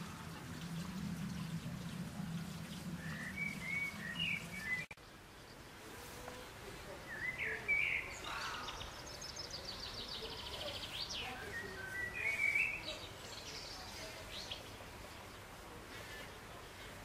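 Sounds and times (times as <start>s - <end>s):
songbird trill: 1.4s - 16.8s
bird chirps: 2.7s - 4.9s, 7.1s - 15.4s.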